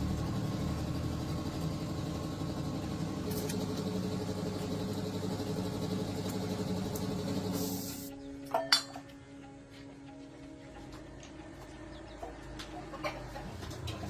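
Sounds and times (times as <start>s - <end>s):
tractor engine idling: 0.0s - 8.0s.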